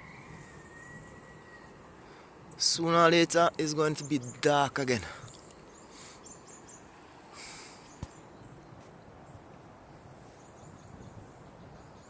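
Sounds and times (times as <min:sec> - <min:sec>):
faint steady hiss: 0:01.4 - 0:12.0
rustling hiss: 0:02.0 - 0:09.0.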